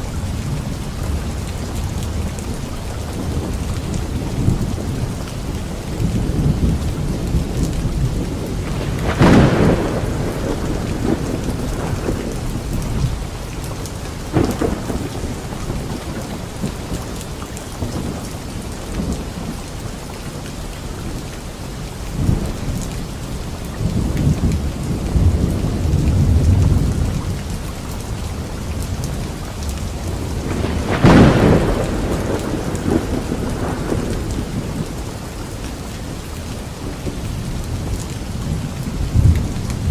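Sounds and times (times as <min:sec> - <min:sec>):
low rolling thunder rumble: 0:00.0 - 0:19.6, 0:23.8 - 0:39.9
rain falling on leaves: 0:00.0 - 0:39.9
thunder cracks: 0:07.4 - 0:17.0, 0:30.0 - 0:35.1.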